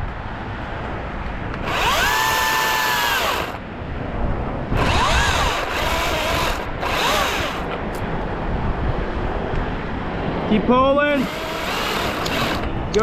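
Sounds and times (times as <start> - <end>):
chainsaw cutting in bursts: 1.6 - 3.6, 4.8 - 7.8, 11.2 - 12.7.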